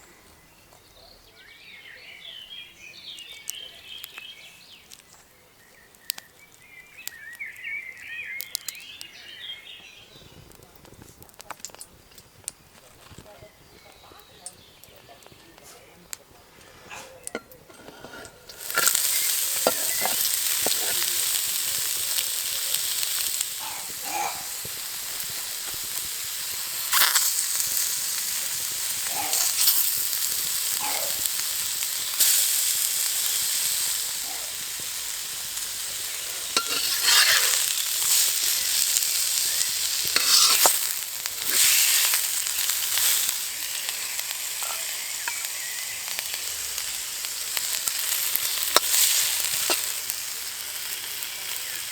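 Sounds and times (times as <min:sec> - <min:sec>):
food sizzling in hot oil: 0:05.8 - 0:15.4, 0:17.2 - 0:51.9.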